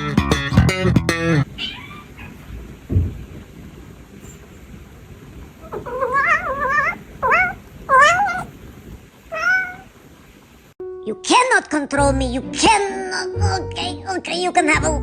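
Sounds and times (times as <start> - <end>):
cat meowing: 1.5 - 2.5, 5.6 - 8.6, 9.3 - 9.9.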